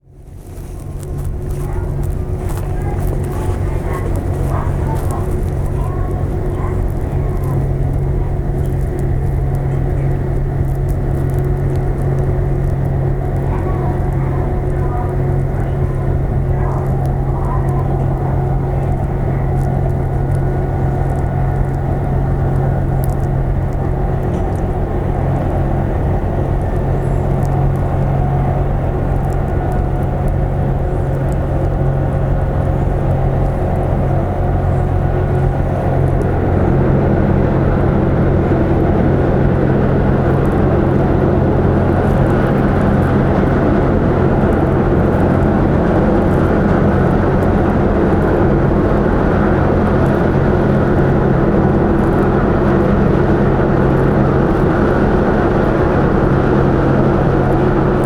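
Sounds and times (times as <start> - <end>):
ship diesel engines droning: 0.0 - 58.0.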